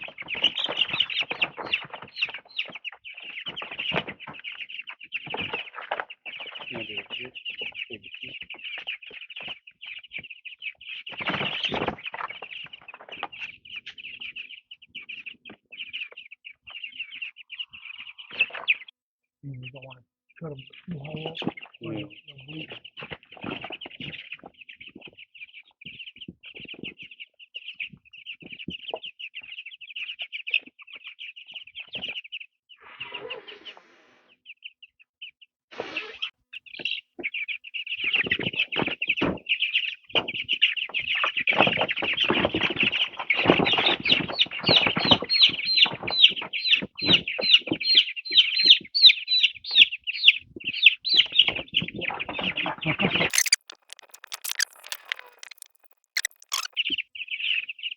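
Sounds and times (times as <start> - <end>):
wings flapping and scuffling: 0.0 - 7.8, 10.9 - 14.5, 22.7 - 25.2, 38.0 - 48.1, 51.4 - 56.8
chickens peeping: 0.0 - 18.9, 36.8 - 57.9.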